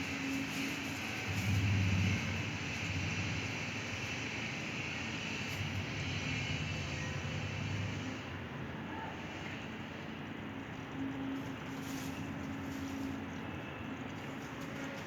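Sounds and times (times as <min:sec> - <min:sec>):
low rumble with hiss: 0:00.0 - 0:09.4.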